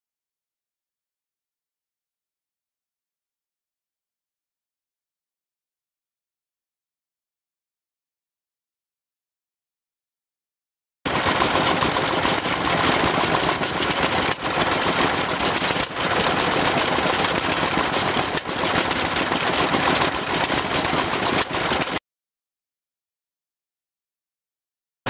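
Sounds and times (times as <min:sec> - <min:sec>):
stationary engine running: 0:11.1 - 0:22.0.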